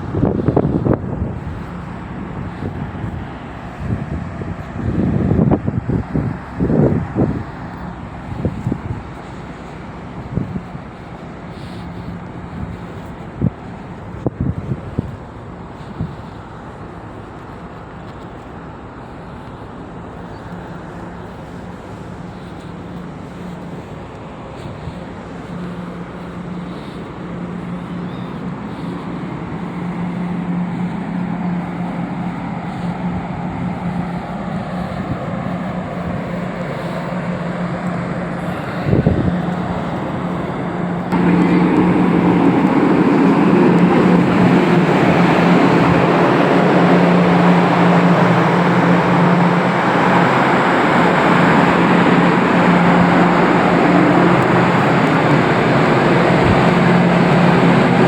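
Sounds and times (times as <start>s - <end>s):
vehicle engine humming: 0.0s - 58.0s
rushing noise: 20.6s - 58.0s.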